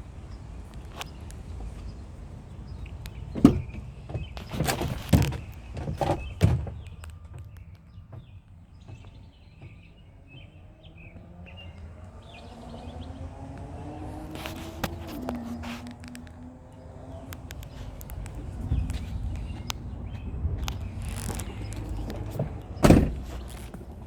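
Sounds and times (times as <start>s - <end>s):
loud clunks and thumps: 20.8s - 23.8s.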